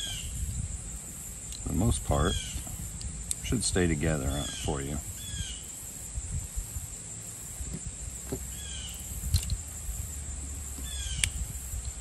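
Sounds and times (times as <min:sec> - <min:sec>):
bird slurred call: 0:04.2 - 0:05.7.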